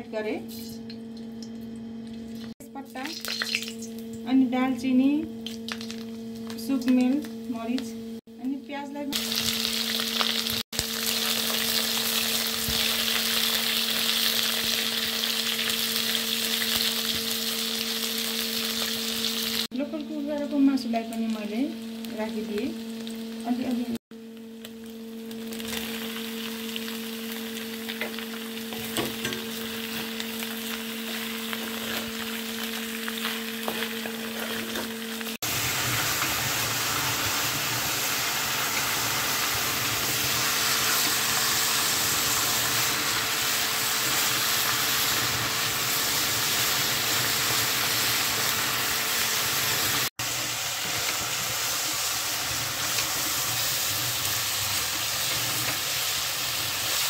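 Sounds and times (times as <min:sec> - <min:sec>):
chicken sizzling in oil: 0:09.1 - 0:57.0
wooden spatula scraping and stirring: 0:31.0 - 0:35.0.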